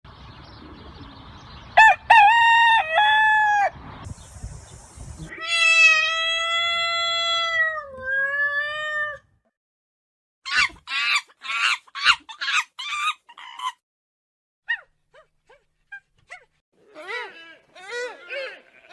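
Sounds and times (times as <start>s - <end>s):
rooster crowing: 1.8s - 3.8s.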